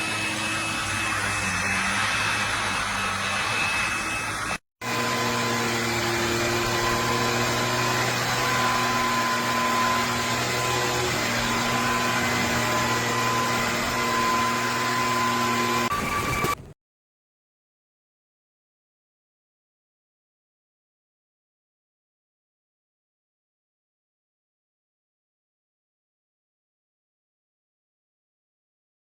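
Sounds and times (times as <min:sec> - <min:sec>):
vacuum cleaner running: 0:00.0 - 0:16.6.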